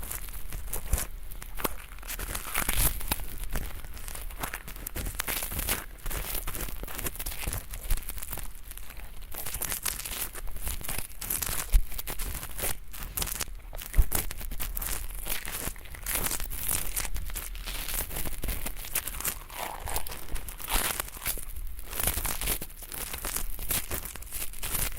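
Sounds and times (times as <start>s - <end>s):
ear pick scraping microphone: 17.5s - 22.0s.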